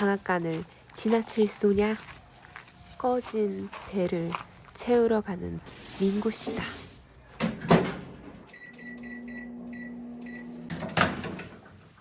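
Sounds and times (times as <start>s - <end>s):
microwave clunk: 7.4s - 11.8s
microwave running hum: 7.6s - 12.0s
microwave keypad beeps: 8.5s - 10.7s.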